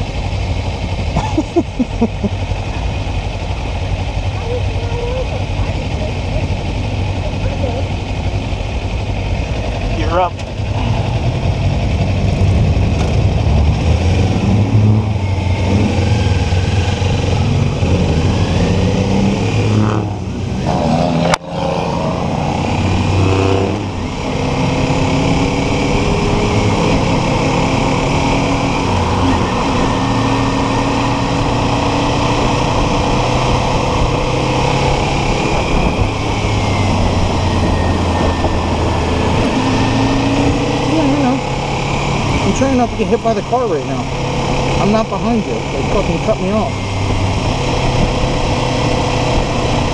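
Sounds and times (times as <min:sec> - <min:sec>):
motorcycle engine accelerating: 0:00.0 - 0:49.9
wind noise: 0:22.4 - 0:42.6, 0:46.7 - 0:49.9.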